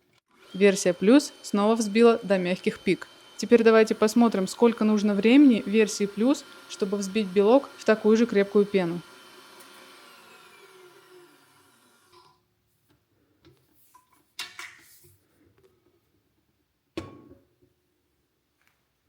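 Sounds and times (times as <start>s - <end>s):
stand mixer motor winding down: 0.3s - 12.4s.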